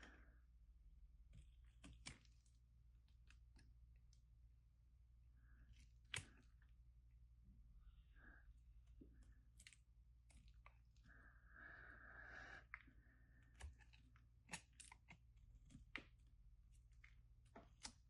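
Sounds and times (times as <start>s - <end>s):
knife cutting and scraping soap: 1.1s - 4.4s, 5.4s - 7.0s, 8.3s - 11.2s, 12.5s - 18.0s.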